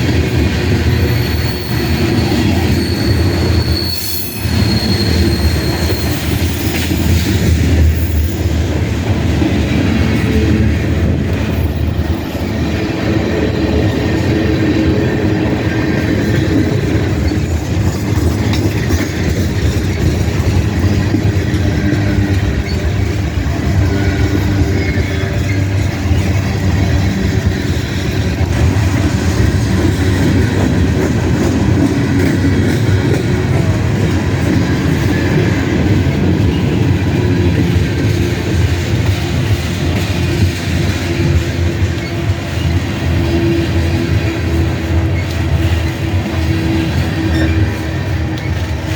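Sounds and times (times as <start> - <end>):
freight train wheels on rails: 0.0 - 48.9.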